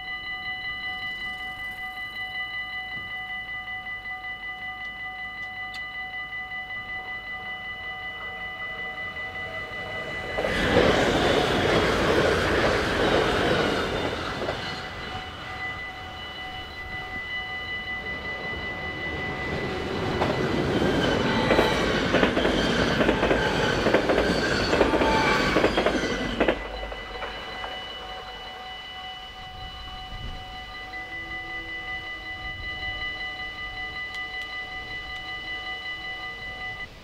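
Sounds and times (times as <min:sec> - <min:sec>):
electric train passing at speed: 0:00.0 - 0:37.0
level-crossing warning bell: 0:00.0 - 0:37.0
train wheel clacks: 0:08.2 - 0:28.6.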